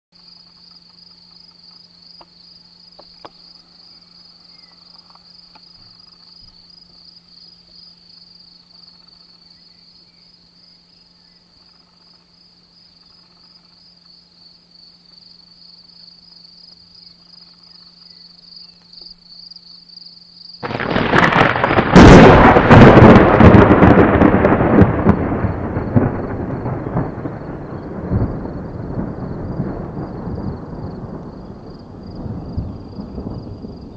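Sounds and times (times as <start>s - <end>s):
insects chirping: 0.2s - 33.9s
thunderclap rumbling: 20.6s - 33.9s.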